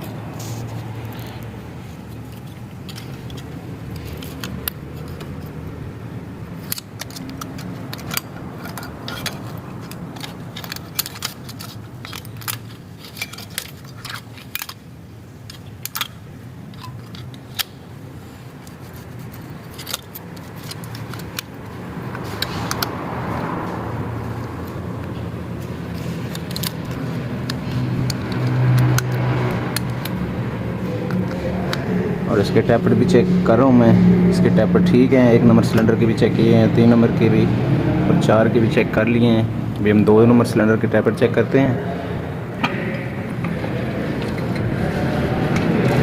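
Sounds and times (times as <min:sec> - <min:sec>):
steady low hum: 0:00.0 - 0:46.0
hand tools clinking on metal: 0:06.6 - 0:14.8.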